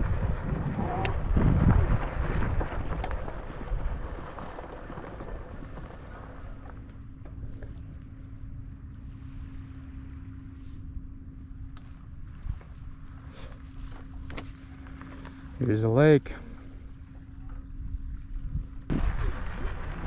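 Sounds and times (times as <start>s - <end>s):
wind rumble on microphone: 0.0s - 9.6s, 16.5s - 20.0s
steady low hum: 0.0s - 20.0s
insect chirping in pulses: 5.0s - 20.0s.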